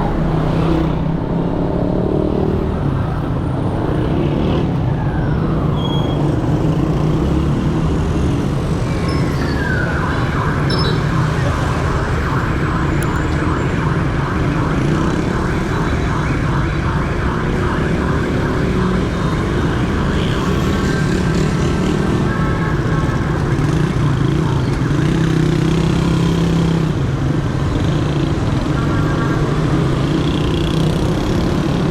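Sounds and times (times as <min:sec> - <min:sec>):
siren warbling: 0:00.0 - 0:07.7, 0:08.5 - 0:26.6
motorcycle traffic engines: 0:00.0 - 0:31.9.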